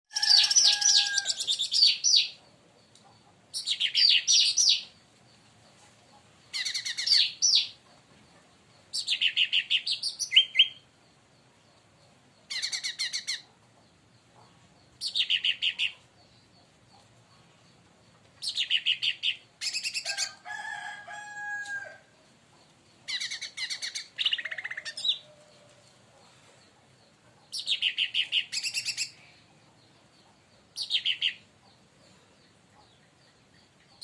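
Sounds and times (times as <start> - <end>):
bird singing trilled phrases: 9.0 - 10.9, 27.6 - 29.2.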